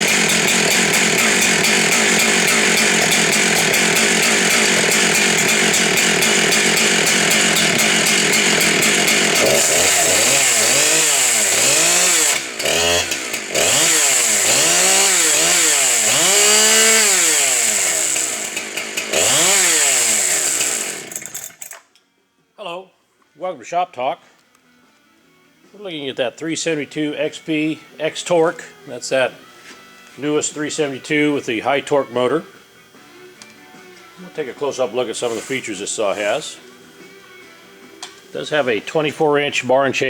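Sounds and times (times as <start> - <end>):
chainsaw revving: 0.0 - 21.8.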